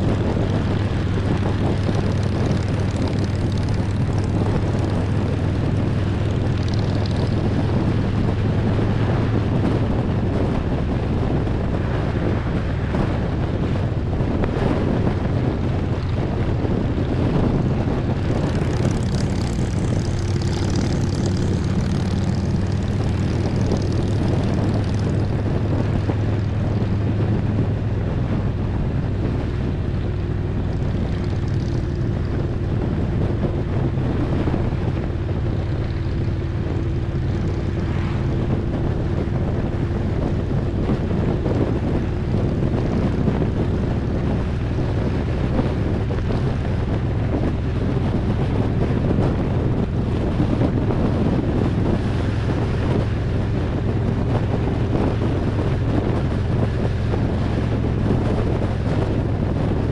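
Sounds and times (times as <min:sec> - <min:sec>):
motorcycle engine cruising: 0:00.0 - 0:59.9
wind rushing over microphone: 0:00.0 - 0:59.9.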